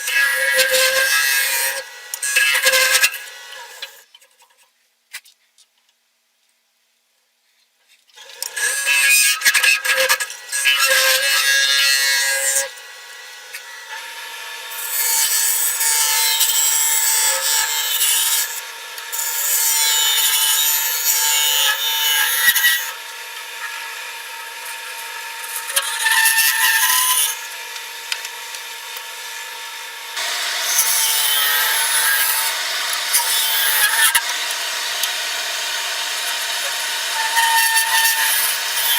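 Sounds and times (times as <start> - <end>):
wood lathe humming: 0.0 - 4.0, 9.8 - 38.9
tool scraping turning wood: 24.6 - 38.9.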